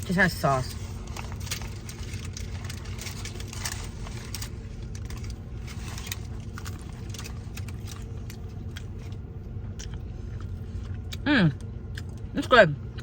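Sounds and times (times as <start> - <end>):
crunching hard-shell taco: 0.0 - 13.0
low car interior hum: 0.0 - 13.0.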